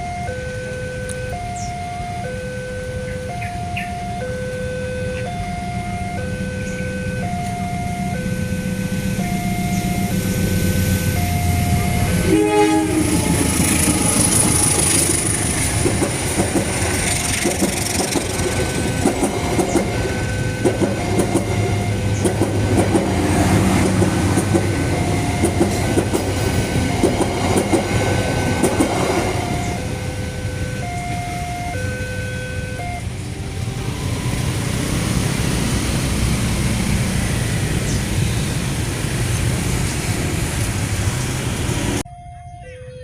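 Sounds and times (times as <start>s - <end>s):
two-tone crossing warning alarm: 0.0s - 40.3s, 41.8s - 43.0s
diesel locomotive rumble: 0.0s - 42.8s
train horn blast: 10.1s - 15.6s
wheels clacking over rail joints: 11.4s - 29.8s.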